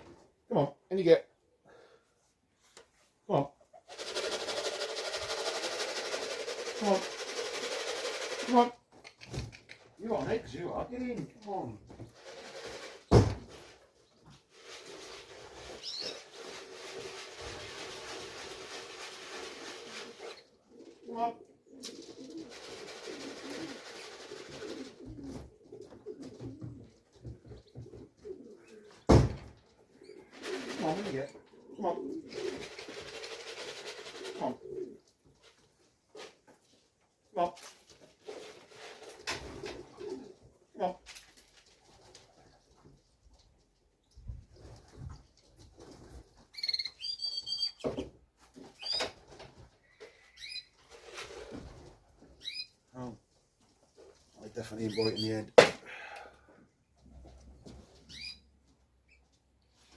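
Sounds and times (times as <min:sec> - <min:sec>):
rustling: 0:03.8 - 0:21.1, 0:21.7 - 0:47.0
pigeons cooing: 0:19.6 - 0:29.1, 0:29.8 - 0:35.2, 0:39.5 - 0:40.7
birds chirping and whistling: 0:46.6 - 0:47.8, 0:58.1 - 0:58.4.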